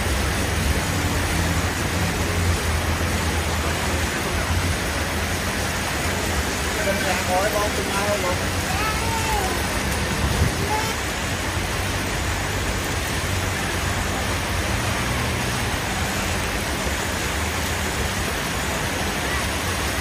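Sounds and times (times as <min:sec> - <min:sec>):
motor vehicles running: 0:00.0 - 0:20.0.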